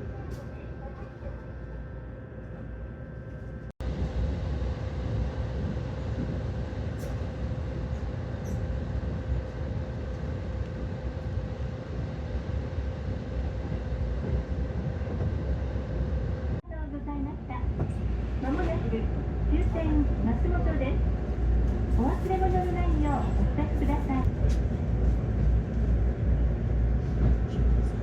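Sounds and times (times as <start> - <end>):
passenger train rumbling: 0.0 - 28.0.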